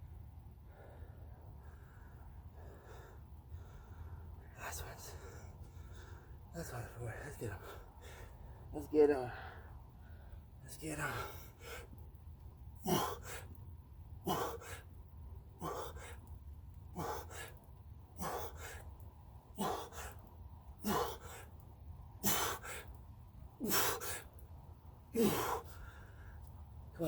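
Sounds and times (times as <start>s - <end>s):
man gasping exhales with grunts: 12.8s - 13.4s, 14.2s - 14.8s, 15.6s - 16.2s, 17.0s - 17.5s, 18.2s - 18.8s, 19.6s - 20.2s, 20.8s - 21.4s, 22.2s - 22.8s, 23.6s - 24.2s, 25.2s - 26.0s.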